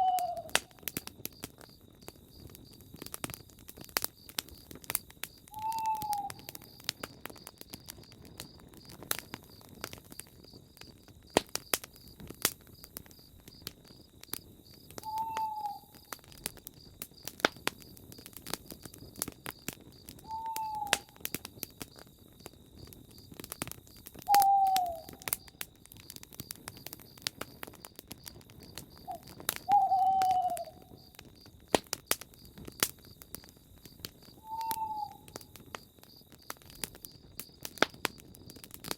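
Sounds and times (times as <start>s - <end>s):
owl hooting: 0.0s - 0.6s, 5.5s - 6.6s, 15.0s - 16.0s, 20.2s - 21.2s, 24.3s - 25.3s, 29.1s - 30.9s, 34.4s - 35.4s
campfire crackling and popping: 0.0s - 38.9s
insects trilling: 0.0s - 38.9s.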